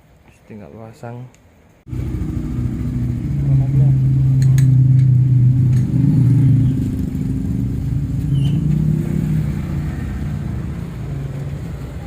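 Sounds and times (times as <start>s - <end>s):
small motorcycle engine idling: 1.9s - 8.7s.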